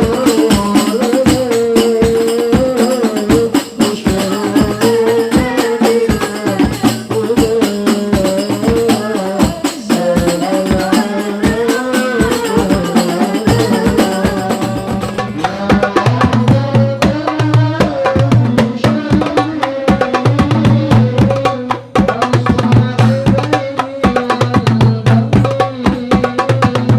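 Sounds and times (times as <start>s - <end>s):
hand drum and tambourine rhythm: 0.0s - 26.9s.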